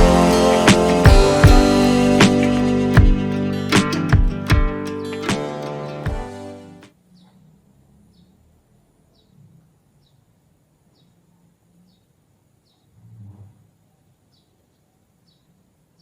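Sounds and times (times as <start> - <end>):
acoustic guitar music: 0.0 - 6.9
outdoor ambience: 0.0 - 16.0.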